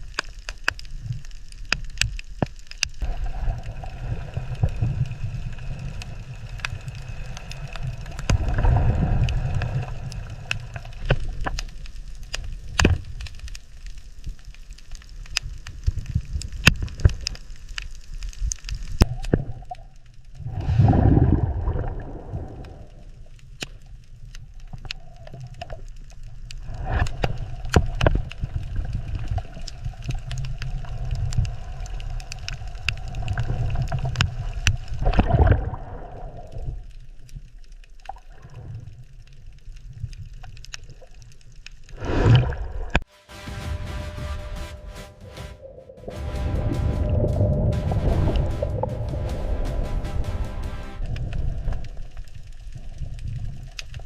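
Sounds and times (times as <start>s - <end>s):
sharp clicks and crackles: 0.0s - 20.6s, 22.4s - 35.6s, 36.4s - 42.0s, 47.0s - 54.0s
underwater bubbling and gurgling: 0.0s - 43.1s, 51.0s - 54.0s
low rumble: 43.0s - 52.7s.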